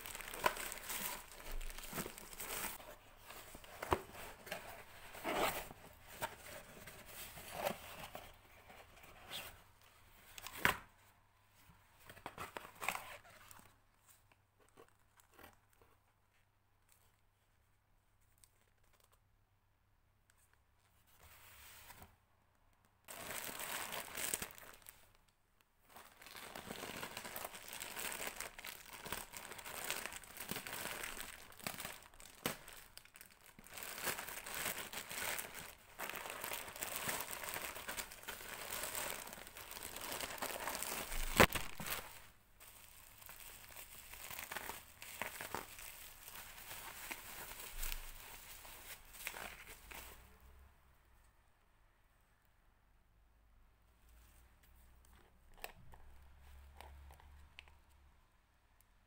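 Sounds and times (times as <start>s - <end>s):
packaging crinkling: 0.0s - 6.5s, 23.1s - 25.2s, 25.9s - 50.1s
packaging tearing: 26.1s - 42.2s.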